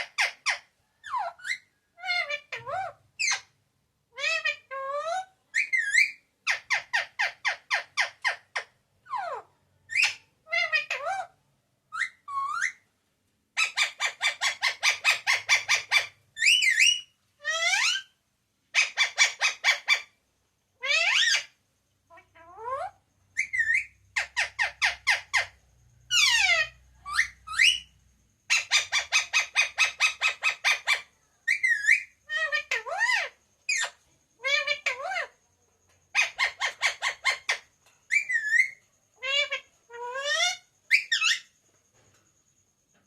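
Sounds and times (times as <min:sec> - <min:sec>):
parrot chattering: 0:00.0 - 0:03.5, 0:04.1 - 0:12.8, 0:13.6 - 0:20.2, 0:20.8 - 0:27.9, 0:28.5 - 0:35.4, 0:36.1 - 0:41.6
parrot squawks and whistles: 0:11.9 - 0:12.8, 0:13.6 - 0:18.1, 0:18.7 - 0:20.1, 0:20.8 - 0:21.5, 0:22.4 - 0:25.5, 0:28.5 - 0:35.3, 0:36.2 - 0:41.5.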